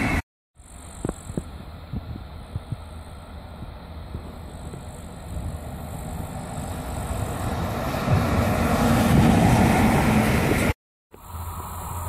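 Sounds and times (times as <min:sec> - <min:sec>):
freight train rumbling on rails: 0:00.0 - 0:00.2, 0:01.4 - 0:10.8.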